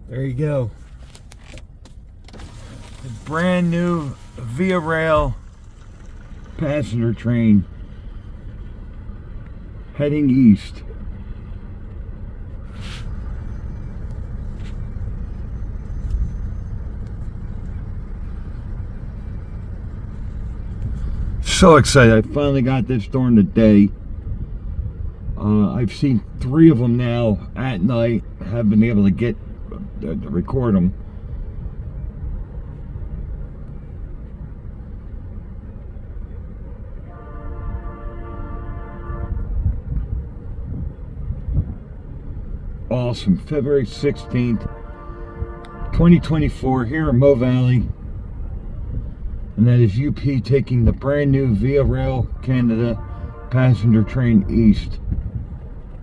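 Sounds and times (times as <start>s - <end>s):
train rumbling past: 5.3s - 10.0s, 10.8s - 22.4s, 51.5s - 56.0s
brief hiss: 12.7s - 13.6s
locomotive horn chord: 37.0s - 39.8s, 43.8s - 47.5s, 51.6s - 55.0s.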